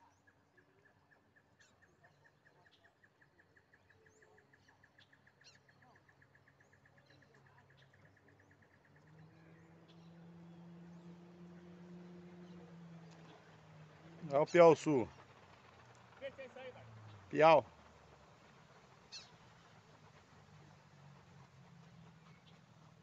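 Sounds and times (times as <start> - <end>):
birds chirping: 1.2 - 23.0
low hum: 8.7 - 23.0.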